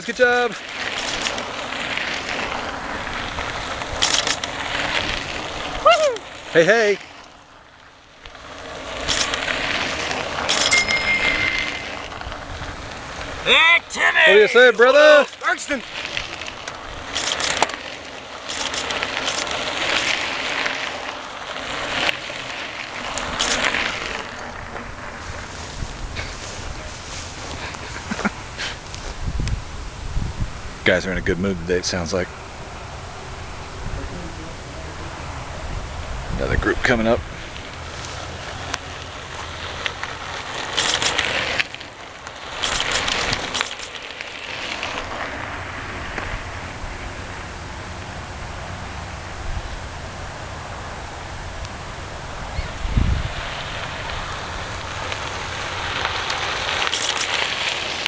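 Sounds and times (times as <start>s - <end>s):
tyres crackling over gravel: 0.0s - 30.0s, 30.8s - 58.0s
people shouting and cheering: 5.8s - 6.3s, 13.4s - 15.0s.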